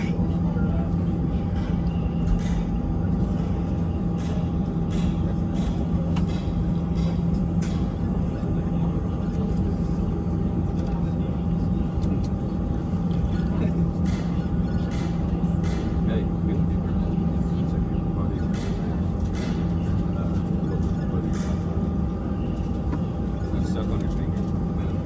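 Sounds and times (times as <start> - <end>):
airliner cabin drone: 0.0 - 25.0
passenger voices: 0.0 - 25.0.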